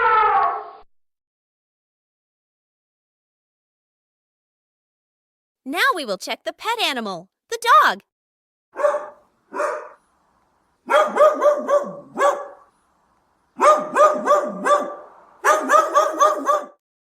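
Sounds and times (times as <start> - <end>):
dog barking: 8.8 - 10.0, 10.9 - 12.7, 13.6 - 16.8.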